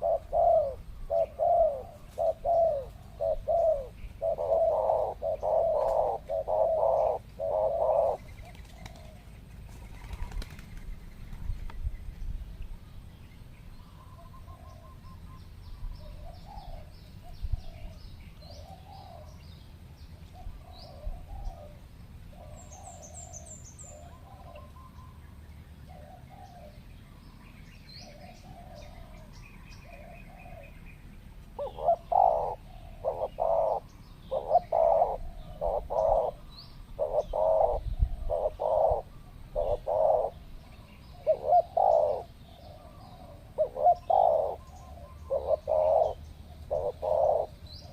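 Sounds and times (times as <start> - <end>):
doves cooing: 0.0 - 10.8, 16.1 - 19.4, 20.3 - 25.2, 28.0 - 31.0, 31.6 - 47.9
small birds chirping: 0.0 - 47.9.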